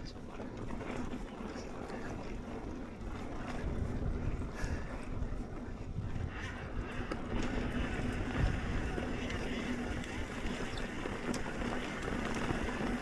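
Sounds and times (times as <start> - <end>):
wind buffeting microphone: 2.0 - 13.0
bike rolling over dirt trail: 6.9 - 13.0.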